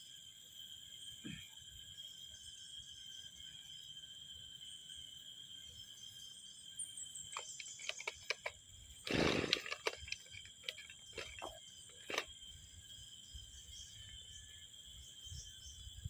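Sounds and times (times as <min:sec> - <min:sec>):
insects chirring: 0:00.0 - 0:16.0
sharp clicks and knocks: 0:07.3 - 0:12.3
loud rasping burst: 0:07.4 - 0:08.5, 0:09.1 - 0:12.3.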